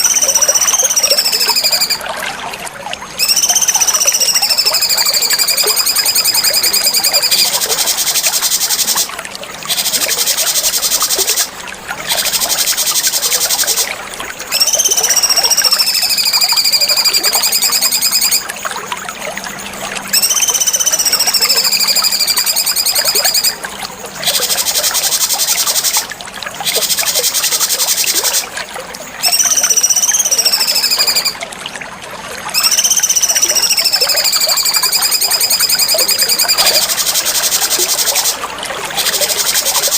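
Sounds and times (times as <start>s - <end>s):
bird whistled notes: 0.0s - 2.0s, 3.2s - 9.1s, 14.5s - 18.4s, 20.1s - 23.6s, 29.2s - 31.4s, 32.5s - 38.4s
songbird buzzy trills: 0.0s - 2.0s, 3.2s - 19.1s, 20.1s - 23.6s, 29.1s - 31.4s, 32.5s - 39.9s.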